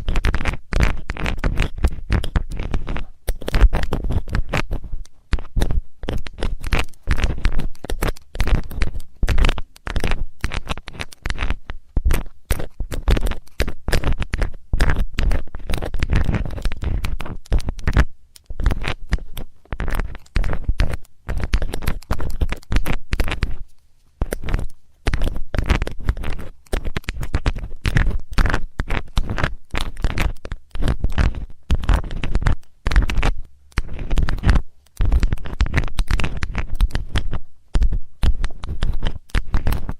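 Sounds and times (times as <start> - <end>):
metal tool scratching: 0.2 - 39.9.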